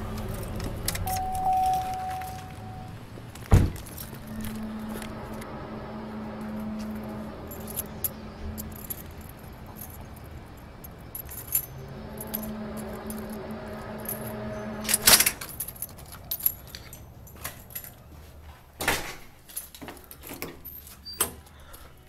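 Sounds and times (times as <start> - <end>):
low steady hum: 0.0 - 18.1
rattling and clicking handling: 7.5 - 18.1.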